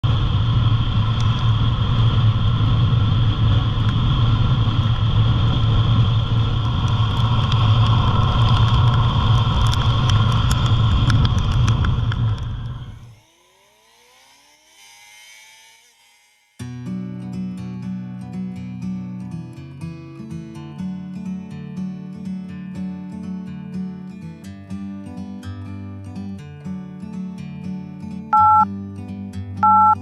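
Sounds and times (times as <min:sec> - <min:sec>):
wind and road noise: 0:00.0 - 0:13.3
motorcycle engine drone: 0:00.0 - 0:17.4, 0:28.4 - 0:28.6, 0:29.6 - 0:30.0
sharp ticks on microphone: 0:06.6 - 0:12.8.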